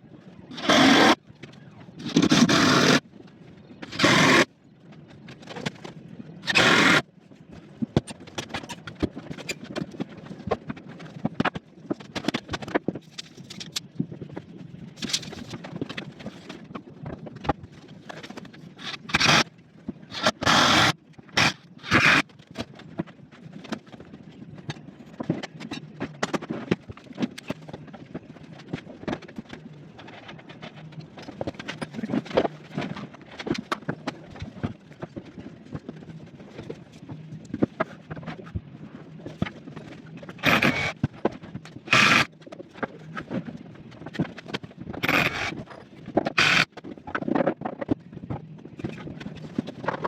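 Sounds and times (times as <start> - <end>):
power tool bursts: 6.5 - 7.0, 18.8 - 19.4, 20.1 - 22.2, 40.4 - 40.9, 41.9 - 42.3, 45.0 - 45.6, 46.4 - 46.7.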